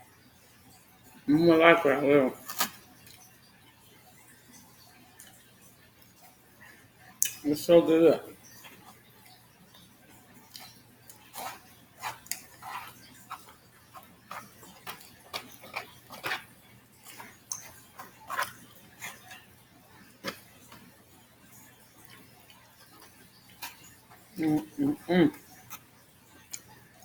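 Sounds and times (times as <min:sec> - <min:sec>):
wet chewing and lip smacks: 0:10.4 - 0:19.4.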